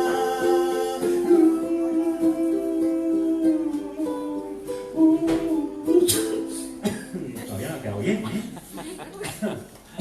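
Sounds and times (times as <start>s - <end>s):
ukulele playing chords: 0.0s - 7.4s.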